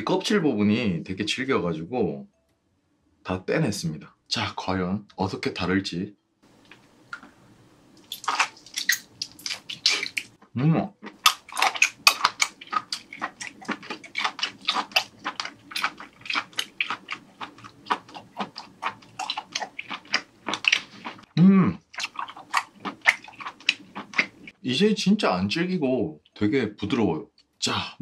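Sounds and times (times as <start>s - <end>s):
wet chewing and mouth clicks: 6.5s - 24.6s
person humming: 21.4s - 21.8s.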